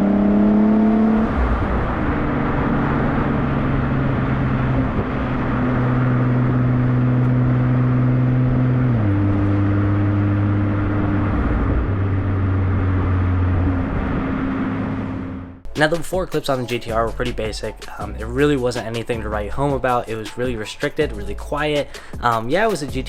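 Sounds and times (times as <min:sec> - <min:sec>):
car engine drone through exhaust: 0:00.0 - 0:15.6.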